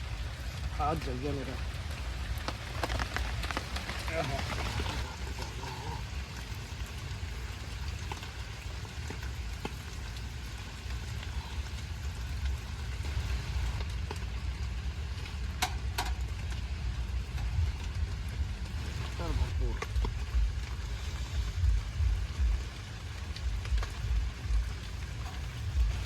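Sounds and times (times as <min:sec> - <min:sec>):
light rain falling: 0:00.0 - 0:26.0
low rumble: 0:00.0 - 0:26.0.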